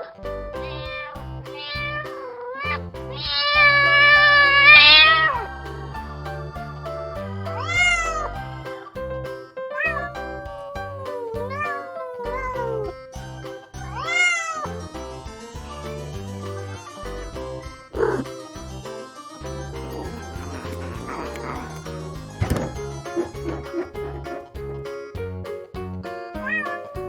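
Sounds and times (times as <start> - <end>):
background music: 0.0 - 27.0
cat meowing: 0.6 - 5.4, 7.6 - 8.3, 9.8 - 12.8, 20.0 - 22.6, 26.4 - 27.0.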